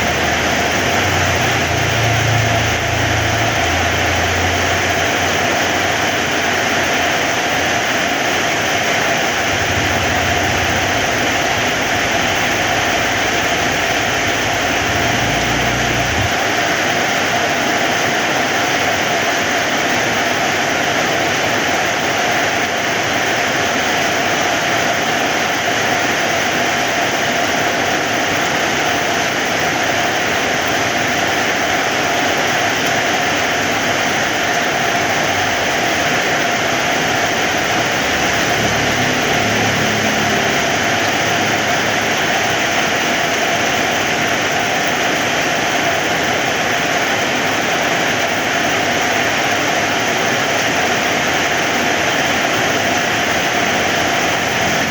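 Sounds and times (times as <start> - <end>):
heavy rain falling: 0.0 - 19.7, 23.7 - 54.9
low hum: 9.1 - 16.5.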